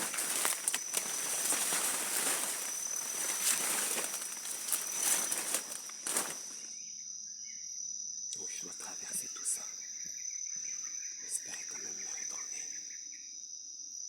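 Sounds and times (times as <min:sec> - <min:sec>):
leaves and twigs rustling and crackling: 0:00.0 - 0:06.7
high insect drone: 0:00.0 - 0:14.0.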